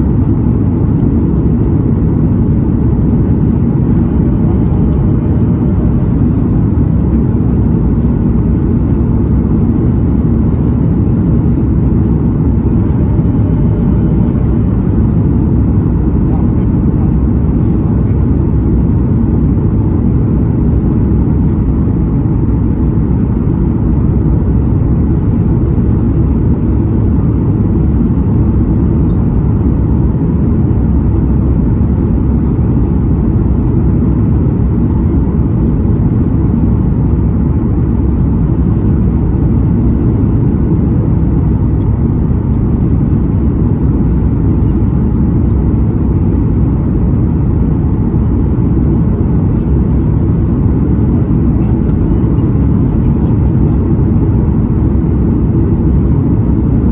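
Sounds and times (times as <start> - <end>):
airliner cabin rumble: 0.0 - 56.9.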